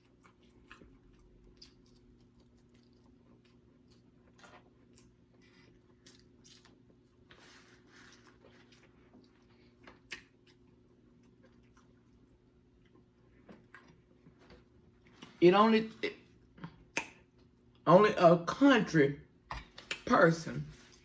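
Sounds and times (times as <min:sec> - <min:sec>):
faint chewing: 0:00.0 - 0:15.4
low room hum: 0:00.0 - 0:21.0
soft mouth clicks: 0:16.9 - 0:17.2.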